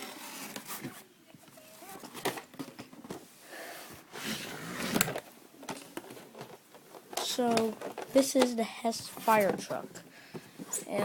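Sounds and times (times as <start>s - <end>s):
cardboard box rustling and scraping: 0.0s - 2.4s, 3.8s - 5.2s.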